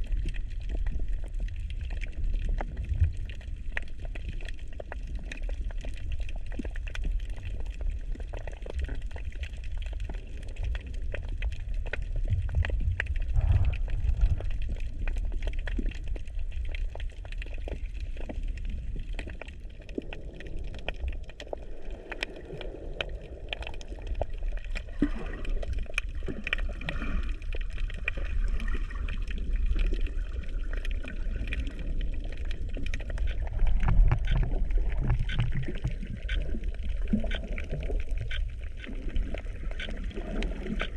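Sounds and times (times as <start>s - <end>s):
small crackling clicks: 0.0s - 40.9s
water sloshing and gurgling: 0.0s - 40.9s
low rumble: 11.6s - 17.2s.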